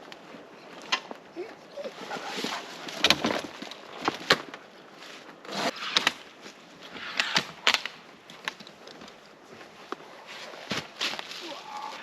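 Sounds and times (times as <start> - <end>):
rustling: 0.0 - 12.0
firewood cracking: 1.9 - 9.2.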